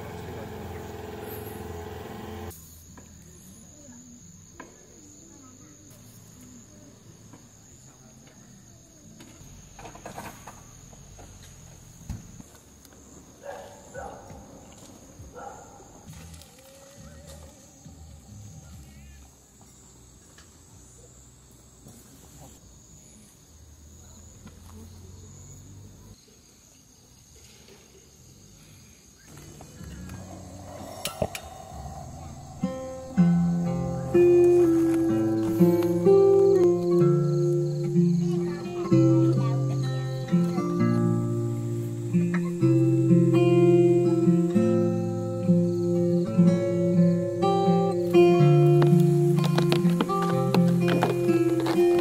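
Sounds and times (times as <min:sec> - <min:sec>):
engine-like sound: 0:00.0 - 0:02.5
insects chirring: 0:00.0 - 0:52.0
high-pitched insect trill: 0:28.0 - 0:52.0
low hum: 0:29.3 - 0:34.2.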